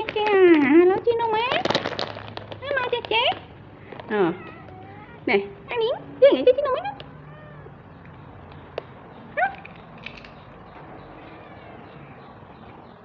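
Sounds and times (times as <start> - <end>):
cat meowing: 4.1 - 5.7, 7.0 - 7.9, 11.1 - 12.4.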